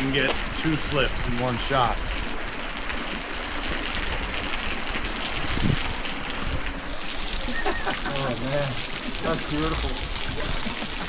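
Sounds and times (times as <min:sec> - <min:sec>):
water splashing down rock: 0:03.9 - 0:11.0.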